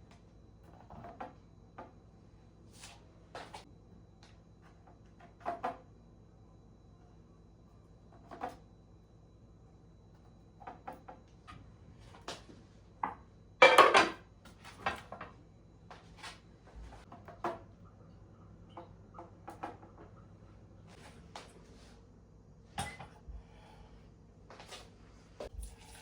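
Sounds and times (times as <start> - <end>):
dishes and utensils clattering: 13.6 - 14.2.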